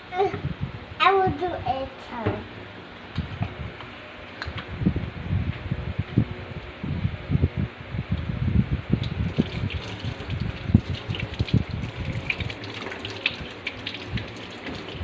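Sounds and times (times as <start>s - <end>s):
tap water running into sink: 9.0s - 15.0s
hands washing with splashing: 9.3s - 15.0s.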